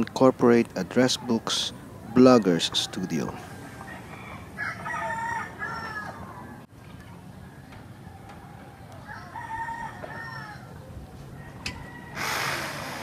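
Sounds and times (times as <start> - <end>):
rooster crowing: 3.4 - 6.6, 8.0 - 13.0.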